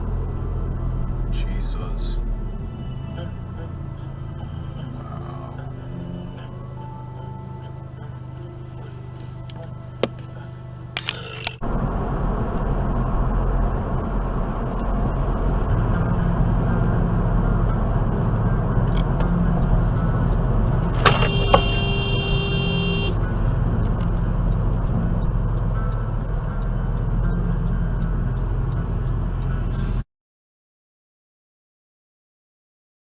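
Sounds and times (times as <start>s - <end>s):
car engine and road noise: 0.0s - 30.1s
car horn: 20.8s - 23.3s.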